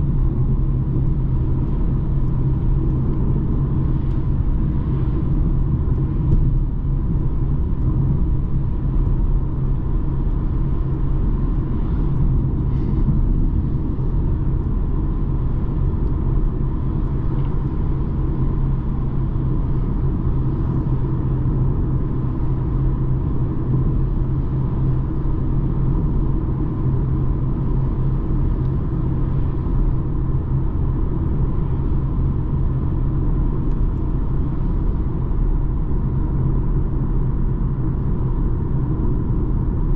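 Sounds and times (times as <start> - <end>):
diesel engine low rumble: 0.0 - 39.9
faint steady whine: 0.0 - 39.9.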